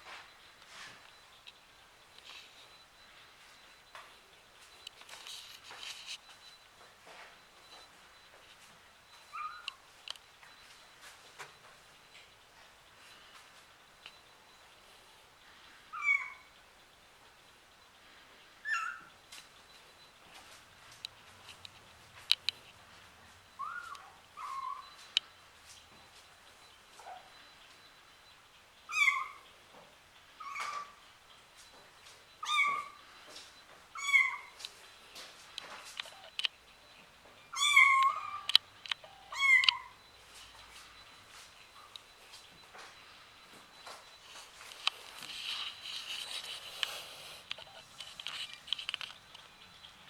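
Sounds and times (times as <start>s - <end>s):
kittens meowing: 15.9s - 16.5s, 23.6s - 25.0s, 28.9s - 29.4s, 30.4s - 31.0s, 32.4s - 33.0s, 34.0s - 34.6s, 37.5s - 40.0s
kitten meowing: 37.5s - 38.5s, 39.3s - 39.9s
faint clicks: 43.7s - 49.6s.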